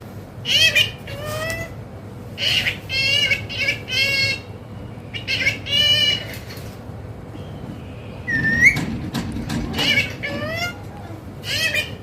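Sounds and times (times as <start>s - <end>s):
parrot calling: 0.4s - 1.8s, 2.4s - 6.7s, 9.6s - 12.0s.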